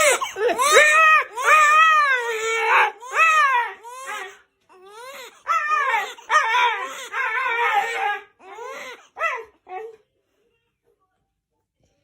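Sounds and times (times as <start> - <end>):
dog whining and yowling: 0.6 - 4.3, 5.0 - 10.0.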